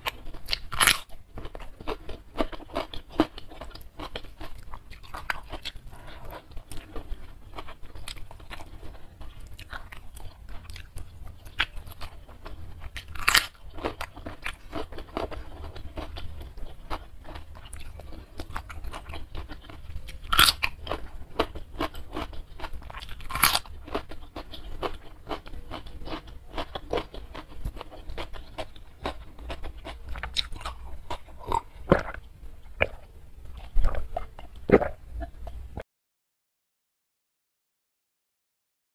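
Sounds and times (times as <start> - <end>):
sharp crunchy bites: 0.0 - 5.8, 12.8 - 16.3, 17.7 - 32.2
wet chewing and crunching: 0.0 - 35.8.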